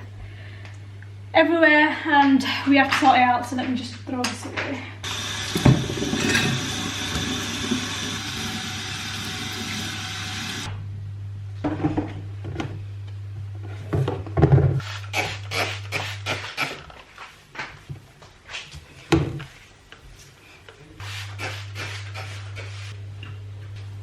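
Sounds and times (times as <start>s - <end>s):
kitchen knocks and clatters: 13.9s - 14.8s.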